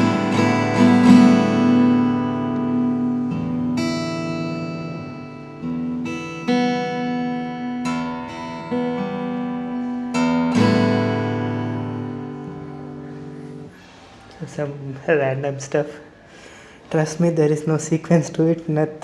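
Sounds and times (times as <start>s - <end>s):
acoustic guitar chords ringing: 0.0s - 14.1s.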